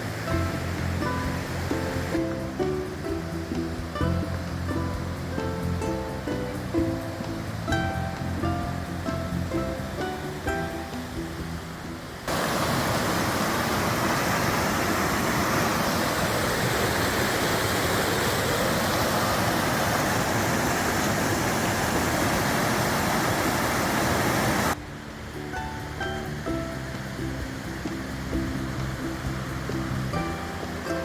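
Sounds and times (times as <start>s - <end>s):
ukulele music: 0.0s - 12.8s, 24.7s - 31.0s
rushing river water: 0.0s - 31.0s.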